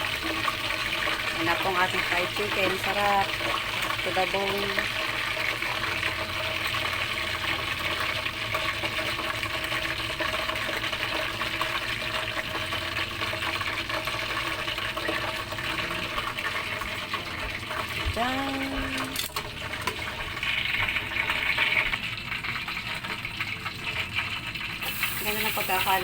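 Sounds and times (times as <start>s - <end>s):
deep-frying oil sizzling: 0.0s - 26.0s.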